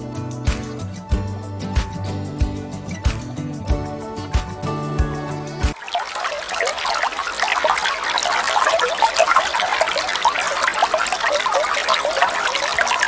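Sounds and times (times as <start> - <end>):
water trickling and bubbling: 2.7 - 13.0.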